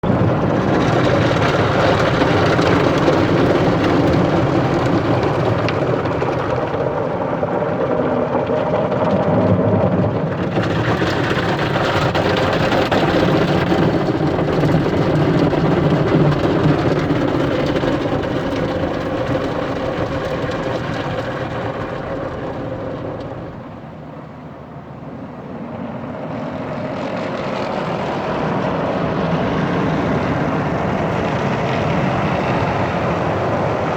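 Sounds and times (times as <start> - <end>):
car wash machinery hum: 0.0 - 33.9.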